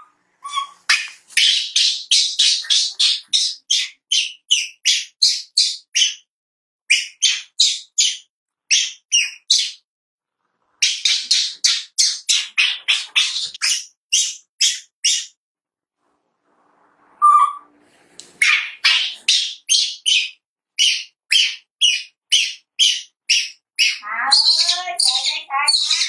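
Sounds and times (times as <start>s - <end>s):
baby monkey squealing: 0.0s - 6.2s, 10.8s - 15.3s, 18.4s - 26.0s.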